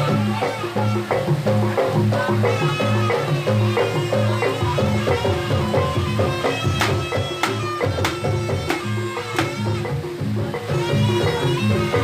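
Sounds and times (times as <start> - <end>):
gamelan percussion ensemble music: 0.0 - 12.0.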